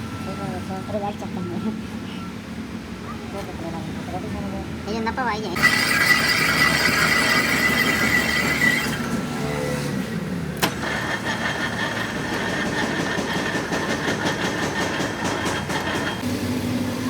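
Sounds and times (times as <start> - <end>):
engine running: 5.6 - 17.0.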